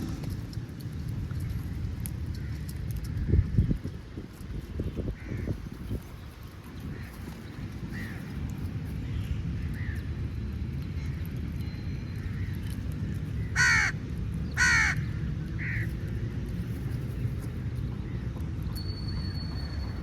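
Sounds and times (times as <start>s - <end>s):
crows cawing: 5.2s - 5.5s, 7.9s - 8.3s, 13.5s - 14.0s, 14.6s - 15.9s.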